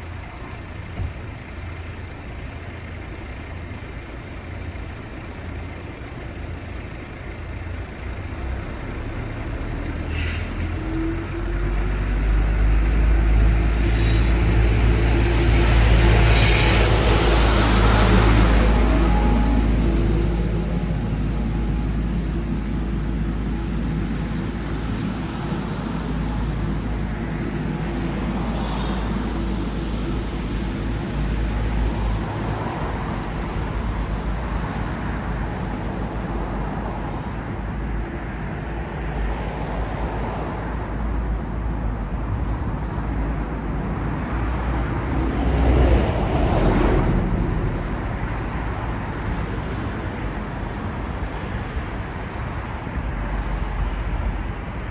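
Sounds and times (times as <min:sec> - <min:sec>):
traffic rumble: 0:00.0 - 0:54.9
vehicle passing close: 0:09.4 - 0:36.4.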